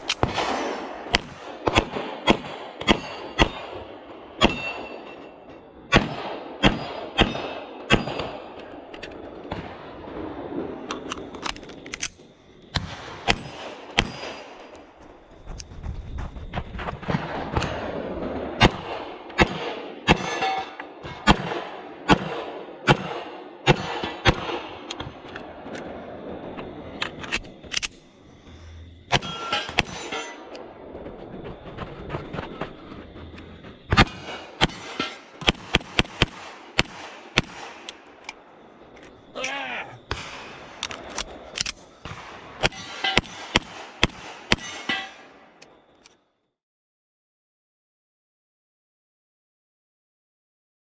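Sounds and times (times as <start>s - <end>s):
pistol shots: 0.0s - 5.1s, 5.9s - 8.6s, 12.8s - 14.7s, 18.6s - 25.0s, 33.9s - 38.4s, 40.1s - 45.4s
steel targets ringing: 4.4s - 5.4s, 29.1s - 30.5s, 44.6s - 45.4s
fainter sharp cracks: 31.7s - 46.1s.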